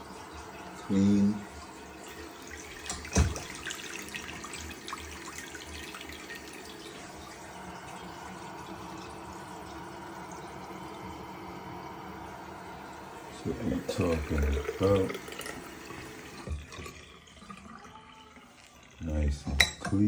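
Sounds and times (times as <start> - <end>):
tap water running into sink: 0.0 - 20.0.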